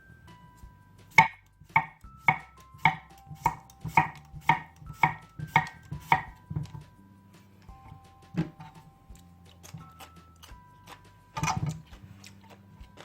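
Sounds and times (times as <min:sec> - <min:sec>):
soft background music: 0:00.0 - 0:13.0
crunchy chewing: 0:09.1 - 0:13.0.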